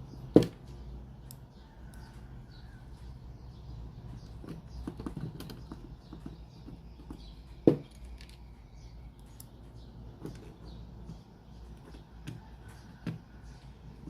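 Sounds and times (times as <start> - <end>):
handling clicks and taps: 4.1 - 8.4.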